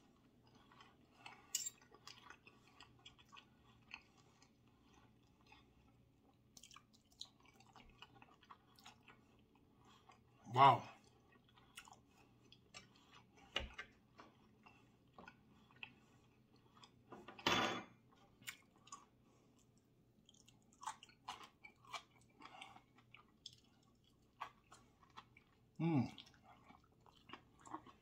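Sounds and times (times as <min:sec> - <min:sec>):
person chewing food: 0:00.0 - 0:28.0.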